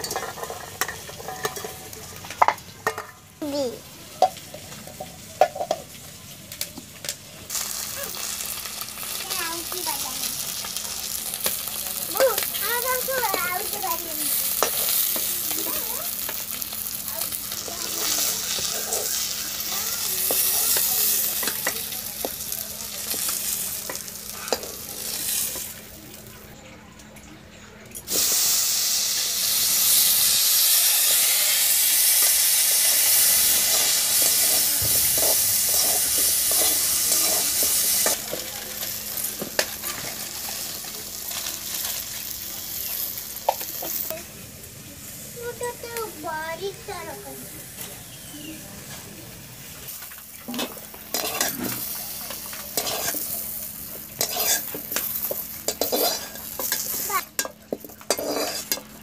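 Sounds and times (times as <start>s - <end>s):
hot oil sizzling: 0.0s - 26.6s, 27.9s - 59.0s
metal spatula scraping a pan: 50.5s - 51.9s, 52.7s - 53.3s, 54.2s - 55.1s, 55.7s - 58.8s.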